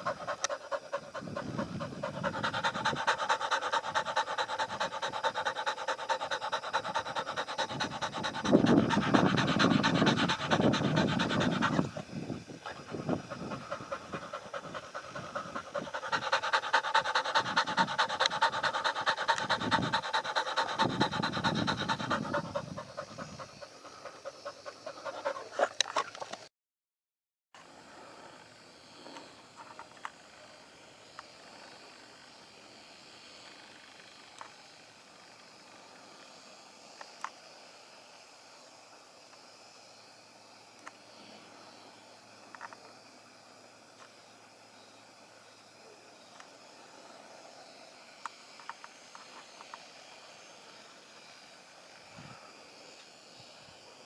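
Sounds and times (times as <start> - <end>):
animal breathing fast: 0.0 - 25.8.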